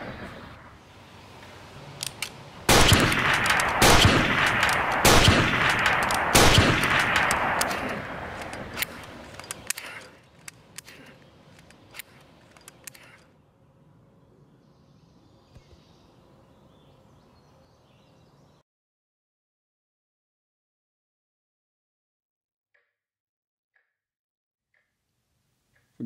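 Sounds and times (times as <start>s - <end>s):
gunshots echoing: 2.7s - 9.9s
faint clicks: 6.9s - 13.3s.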